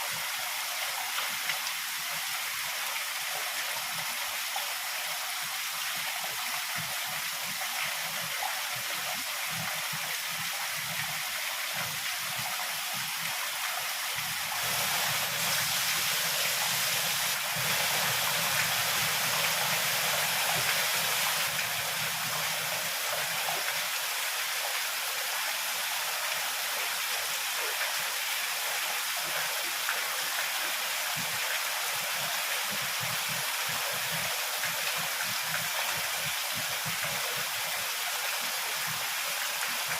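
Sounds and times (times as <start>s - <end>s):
heavy rain falling: 8.9s - 39.9s.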